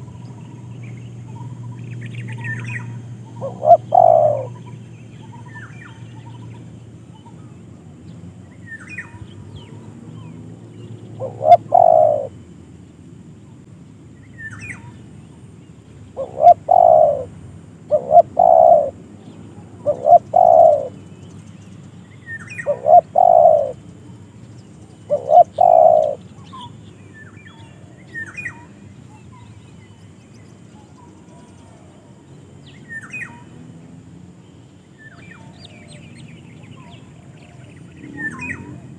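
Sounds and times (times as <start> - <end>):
small birds chirping: 0.0 - 38.9
dove cooing: 2.2 - 4.7, 11.2 - 12.3, 16.2 - 19.0, 19.7 - 21.0, 22.5 - 23.8, 25.1 - 26.2.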